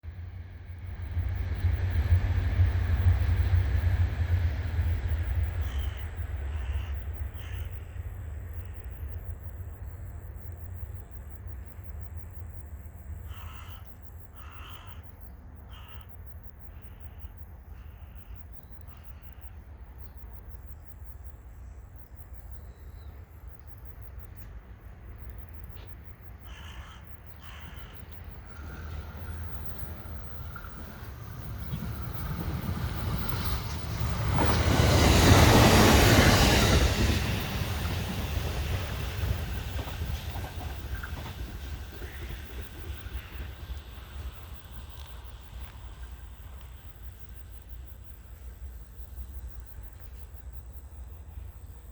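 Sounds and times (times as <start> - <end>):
electric train approaching: 0.1 - 11.0, 24.2 - 51.8.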